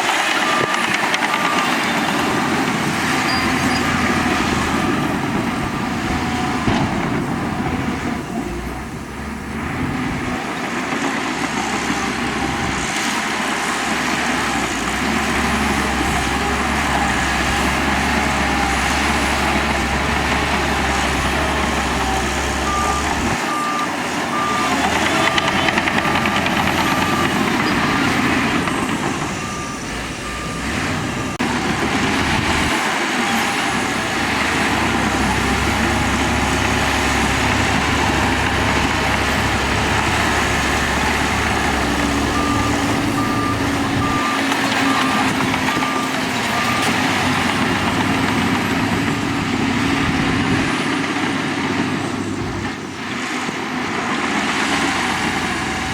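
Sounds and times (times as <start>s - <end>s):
heavy machinery diesel engine: 0.0s - 55.9s
reversing alarm beeping: 0.1s - 6.7s, 15.4s - 49.6s.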